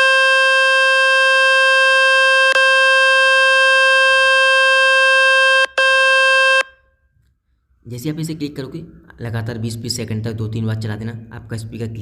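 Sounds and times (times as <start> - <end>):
loud buzzing tone from phone speaker: 0.0 - 6.8.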